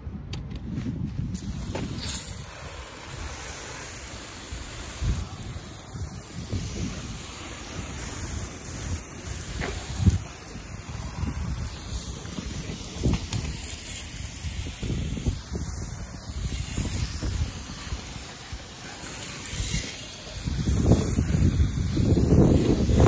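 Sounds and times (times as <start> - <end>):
hose spraying water: 1.3 - 23.0.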